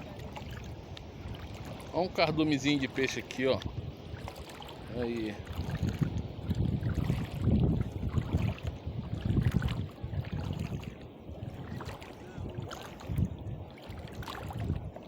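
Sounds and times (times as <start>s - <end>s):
water lapping: 0.0s - 15.0s
wind buffeting microphone: 0.0s - 15.0s.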